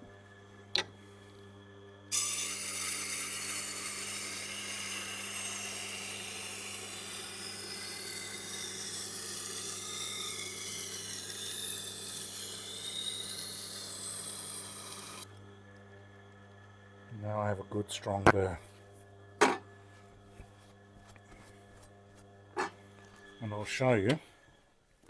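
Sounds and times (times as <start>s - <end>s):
knife grinding on sharpening wheel: 2.1s - 15.3s, 22.6s - 22.8s.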